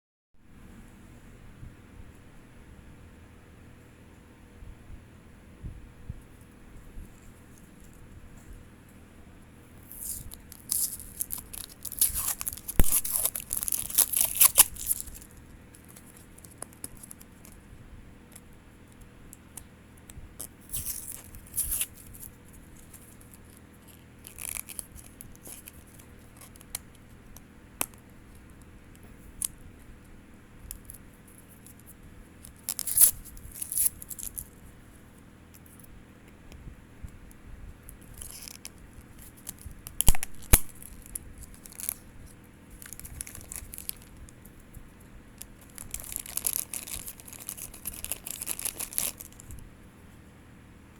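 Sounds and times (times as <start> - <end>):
packaging tearing and crinkling: 9.8 - 17.6, 20.4 - 27.0, 30.8 - 34.5, 38.0 - 42.1, 42.8 - 44.6, 45.4 - 49.6.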